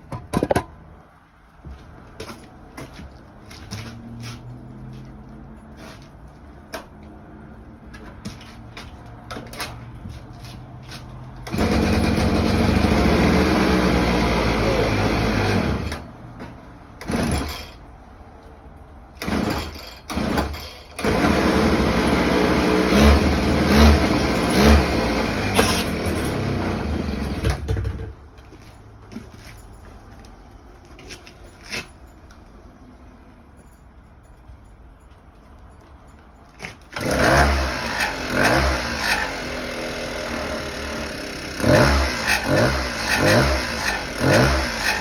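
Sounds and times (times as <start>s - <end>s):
two-stroke engine starting and running: 11.4s - 16.2s, 17.0s - 17.8s, 19.2s - 28.2s, 36.6s - 45.0s.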